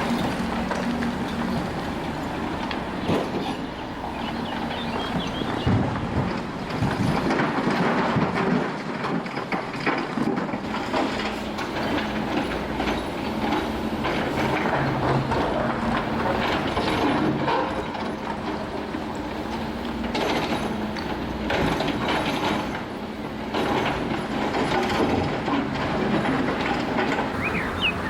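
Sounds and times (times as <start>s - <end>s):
demolition machine engine hum: 0.0s - 28.0s
clattering and knocking of debris: 5.6s - 18.1s.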